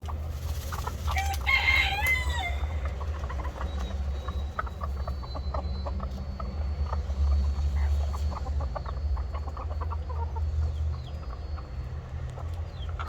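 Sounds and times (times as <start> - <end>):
rooster crowing: 1.1 - 2.9.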